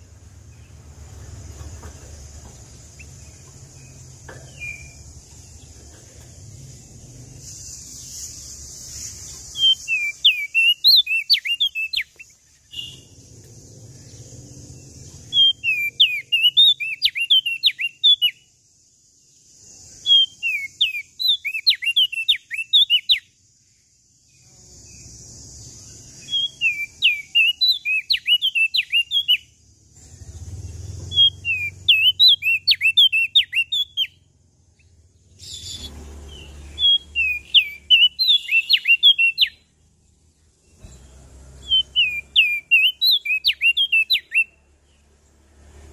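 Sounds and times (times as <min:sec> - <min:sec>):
faint steady high hiss: 0:00.0 - 0:15.4
bird singing sliding chirps: 0:00.0 - 0:45.9.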